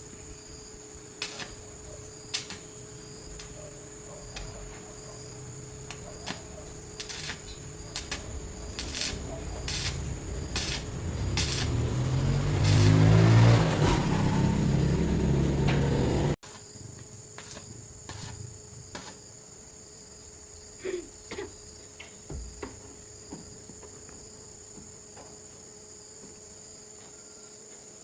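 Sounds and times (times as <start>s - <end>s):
crickets chirping: 0.0s - 15.5s, 16.4s - 28.0s
engine running: 5.5s - 16.4s.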